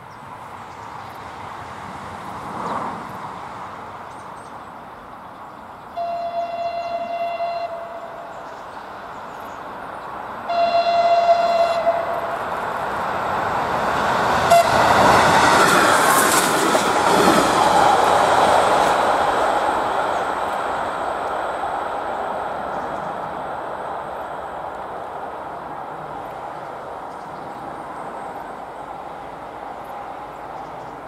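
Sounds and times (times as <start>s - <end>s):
train horn blast: 6.0s - 8.4s, 10.4s - 12.7s, 14.4s - 15.3s
train wheels clacking on rails: 11.2s - 21.1s.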